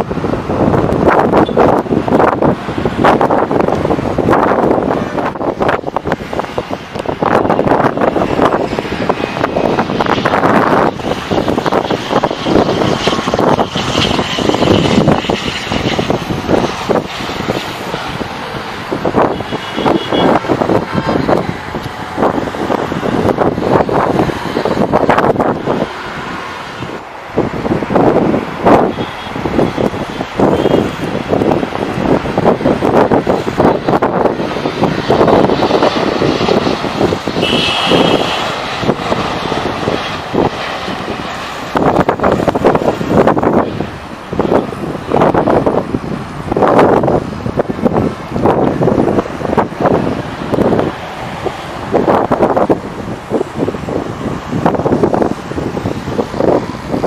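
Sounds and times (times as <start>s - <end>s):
engine rumble: 0.0s - 57.0s
wind buffeting microphone: 0.0s - 57.0s.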